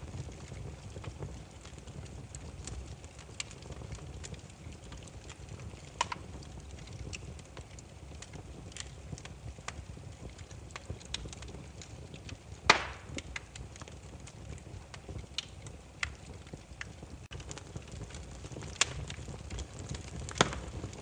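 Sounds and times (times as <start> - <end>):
loud snap of fire: 0.0 - 21.0
wood fire crackling: 0.0 - 21.0
sharp pop of fire: 12.6 - 13.5, 20.2 - 21.0.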